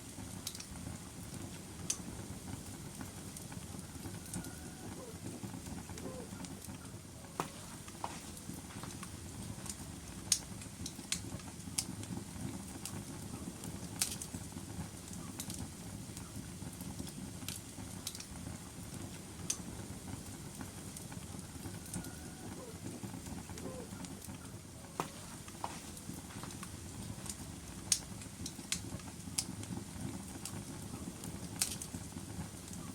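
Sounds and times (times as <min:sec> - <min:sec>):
fire rumbling: 0:00.0 - 0:32.9
logs popping and snapping: 0:07.4 - 0:11.9, 0:25.0 - 0:29.5.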